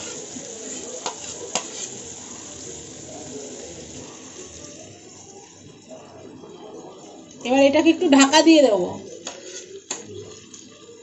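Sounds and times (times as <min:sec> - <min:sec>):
butter sizzling in a pan: 0:00.0 - 0:11.0.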